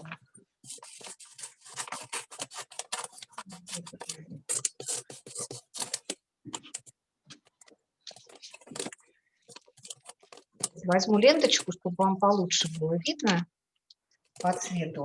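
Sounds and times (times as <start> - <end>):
gift wrap crinkling and clicking: 0.0 - 11.8.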